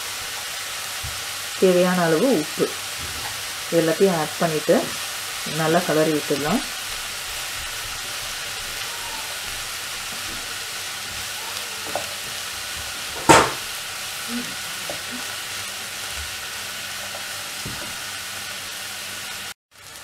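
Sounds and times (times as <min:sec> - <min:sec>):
vegetables sizzling in a pot: 0:00.0 - 0:20.0
wooden spatula knocking pot: 0:13.2 - 0:13.6.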